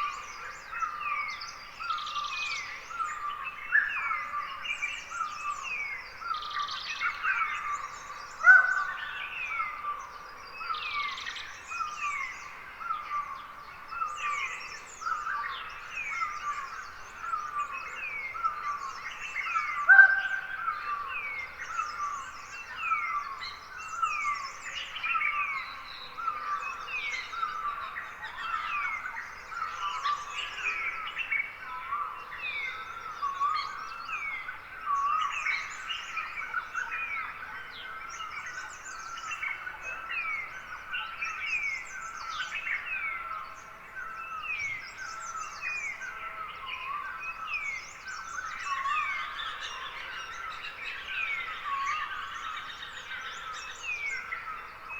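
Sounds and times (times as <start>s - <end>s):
loud bird calls: 15.2s - 23.3s
birds chirping: 18.7s - 21.0s.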